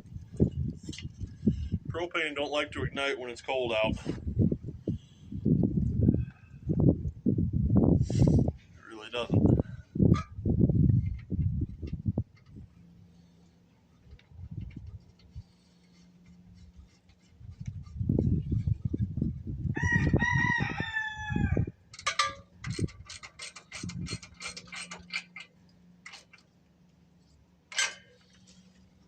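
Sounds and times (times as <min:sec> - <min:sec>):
rooster crowing: 0:19.7 - 0:21.8.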